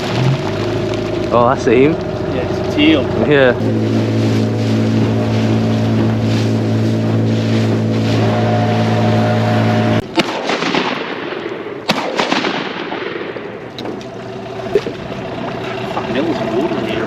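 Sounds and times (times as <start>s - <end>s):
boat motor running: 0.0s - 17.0s
noisy wash: 0.0s - 17.0s
shotgun shots: 10.0s - 13.8s.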